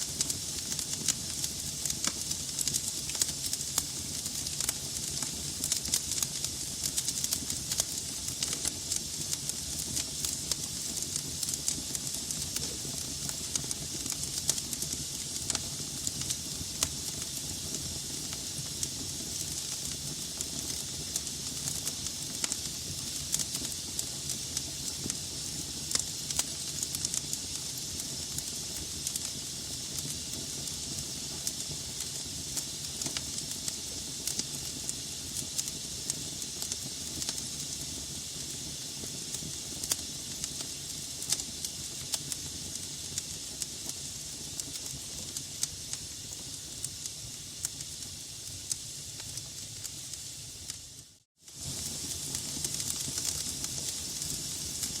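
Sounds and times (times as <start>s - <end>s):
fire hissing: 0.0s - 55.0s
logs crackling and popping: 0.2s - 17.4s.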